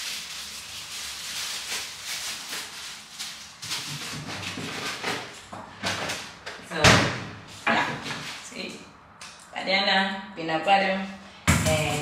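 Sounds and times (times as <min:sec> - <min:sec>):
rustling in a refrigerator: 0:00.0 - 0:08.6.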